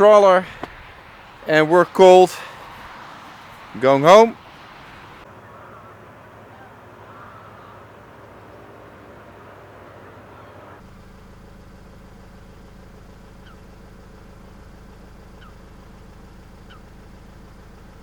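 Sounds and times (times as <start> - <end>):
noisy rushing: 0.0 - 10.8
engine humming: 0.0 - 18.0.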